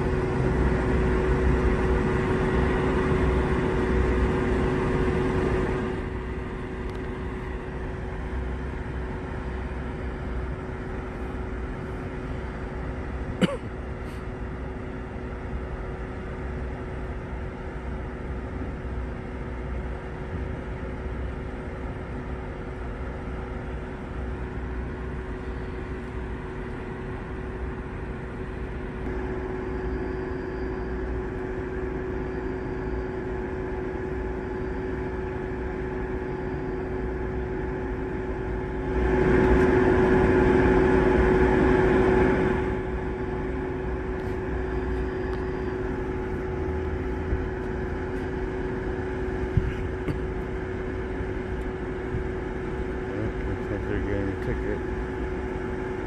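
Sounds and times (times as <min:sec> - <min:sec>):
car engine idling: 0:44.2 - 0:54.7.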